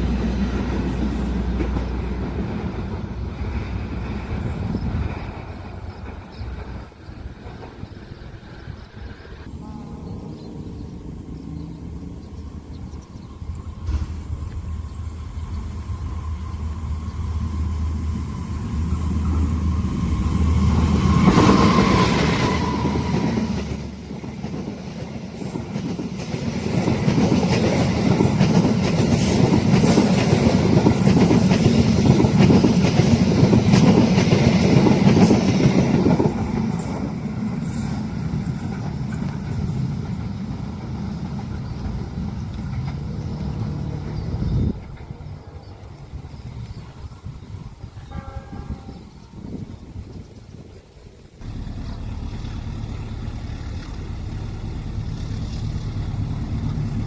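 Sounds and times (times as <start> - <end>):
train wheels clickety-clack: 0.0 - 8.7, 13.5 - 16.8, 17.5 - 48.7
locomotive engine hum: 0.0 - 47.9, 51.4 - 57.0
brief high tone: 9.5 - 11.4.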